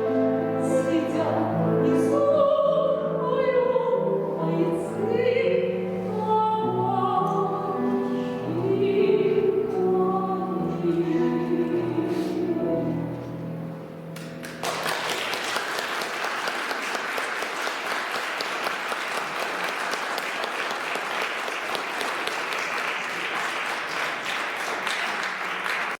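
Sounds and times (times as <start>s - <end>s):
song with piano accompaniment: 0.0s - 17.0s
audience applause: 14.2s - 26.0s.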